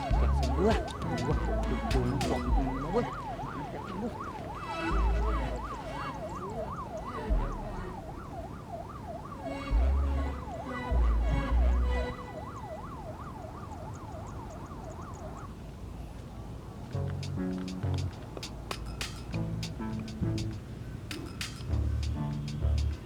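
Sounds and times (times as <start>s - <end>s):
electronic siren wailing: 0.0s - 15.8s
deep thuds: 0.1s - 3.4s.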